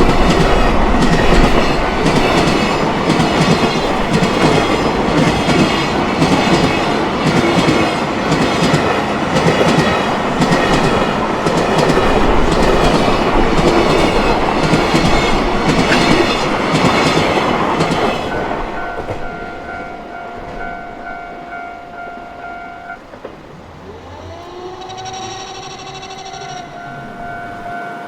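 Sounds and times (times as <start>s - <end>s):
train wheels clattering: 0.0s - 27.8s
crossing warning bell: 0.0s - 28.0s
rising tone: 21.4s - 28.0s.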